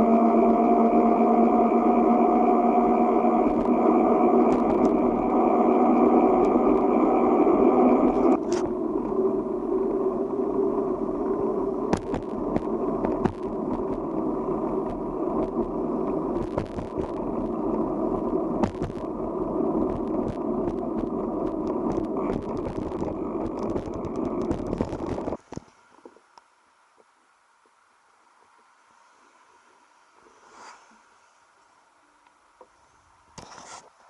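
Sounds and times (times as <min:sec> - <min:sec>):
bicycle rolling noise: 0:00.0 - 0:26.4
small clicks and rattles: 0:03.3 - 0:07.0, 0:11.9 - 0:19.2, 0:19.8 - 0:26.2.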